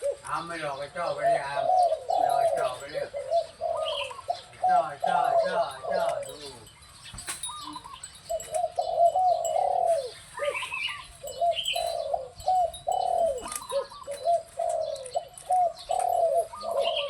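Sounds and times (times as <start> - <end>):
dove cooing: 0.0 - 17.0
high bird chirps: 6.4 - 17.0.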